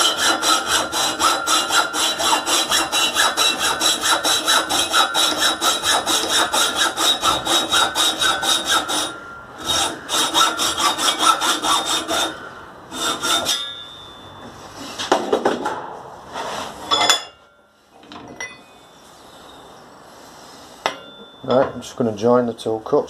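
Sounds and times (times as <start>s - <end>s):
hacksaw cutting metal pipe: 0.0s - 13.9s.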